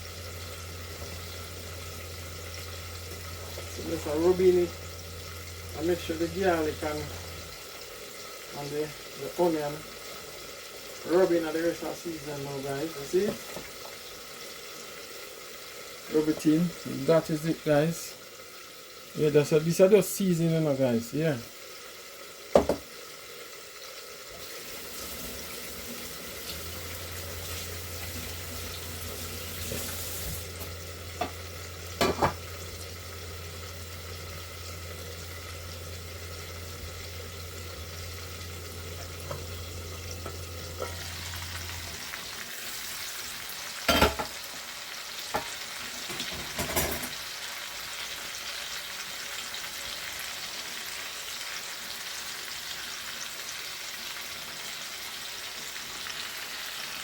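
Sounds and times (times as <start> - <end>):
low steady hum: 0.0 - 9.4, 24.4 - 43.1
food sizzling in hot oil: 0.0 - 57.0
utensil knocking against pot: 22.6 - 22.8.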